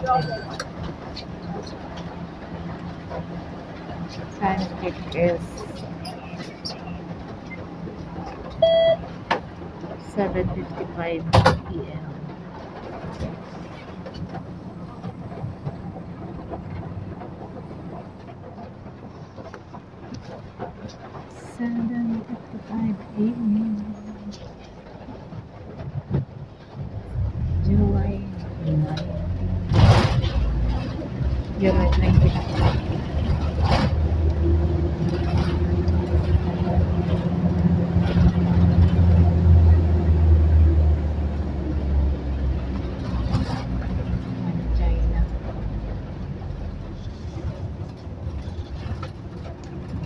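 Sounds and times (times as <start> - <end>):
train rumble inside carriage: 0.0 - 50.0.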